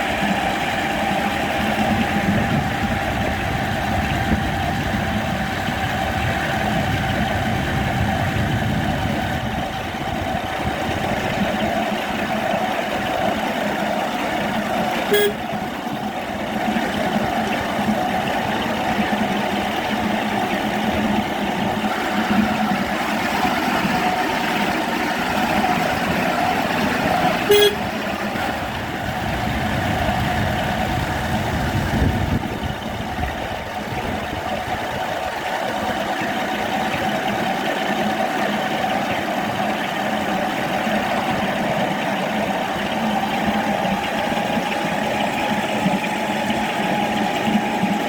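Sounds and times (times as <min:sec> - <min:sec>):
electric locomotive running: 0:00.0 - 0:48.0
locomotive horn toot: 0:15.0 - 0:15.8, 0:27.3 - 0:28.2.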